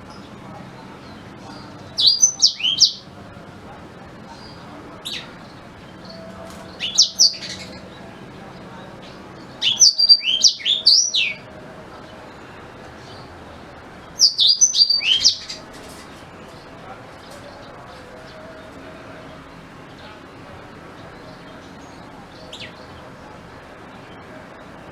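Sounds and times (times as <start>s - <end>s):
canary singing: 0.0s - 3.3s, 4.2s - 11.6s, 12.2s - 17.7s, 20.3s - 23.2s.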